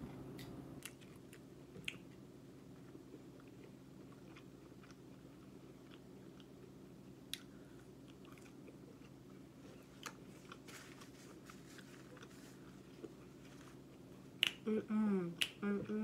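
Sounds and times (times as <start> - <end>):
lip smacks: 14.4 - 14.7.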